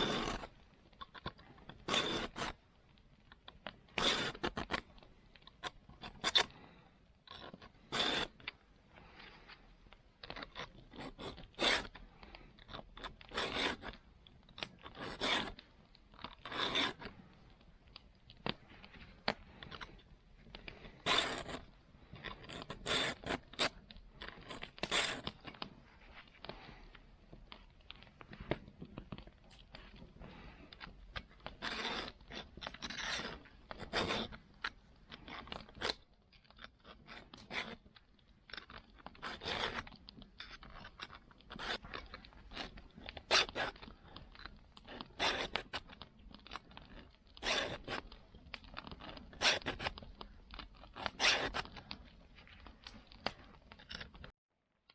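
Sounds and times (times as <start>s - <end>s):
file rasping on a saw: 0.0s - 0.4s, 1.9s - 2.5s, 4.0s - 4.5s, 7.9s - 8.3s, 11.0s - 11.9s, 13.3s - 13.9s, 15.0s - 15.5s, 16.5s - 17.0s, 21.1s - 21.6s, 22.8s - 23.7s, 43.3s - 43.8s, 45.2s - 45.7s, 47.4s - 48.0s.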